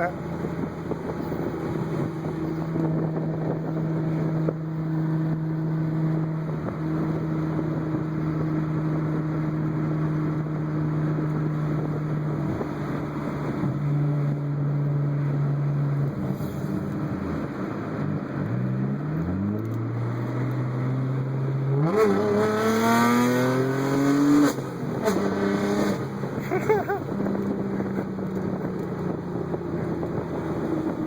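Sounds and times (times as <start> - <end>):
car engine droning: 0.0 - 31.0.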